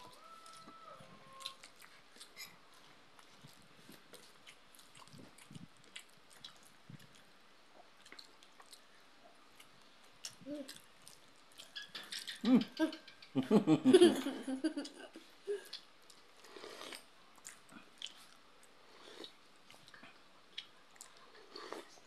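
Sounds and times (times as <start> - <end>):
chewing with wet smacks: 1.4 - 12.4, 16.8 - 22.0
people laughing: 12.5 - 15.6.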